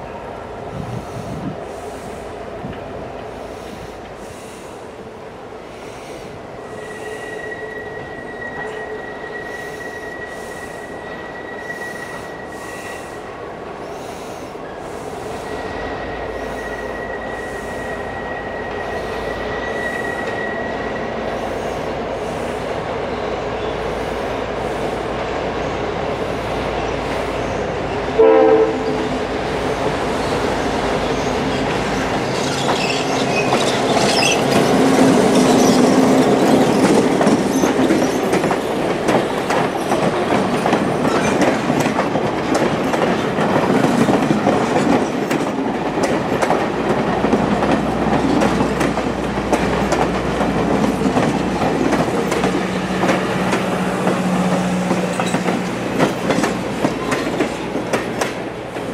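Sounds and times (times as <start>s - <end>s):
train rumbling past: 0.0s - 58.9s
wheel squeals: 6.7s - 13.0s, 15.4s - 21.0s, 31.2s - 38.3s
train horn blast: 28.2s - 29.3s.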